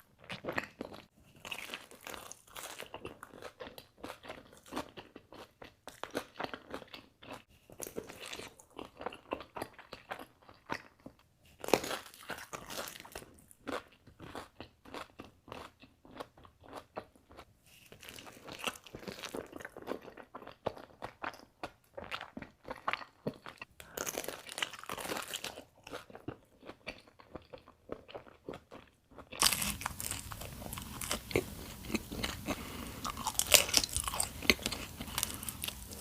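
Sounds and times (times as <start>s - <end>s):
chewing: 0.2s - 36.0s
crust crunching: 29.4s - 36.0s.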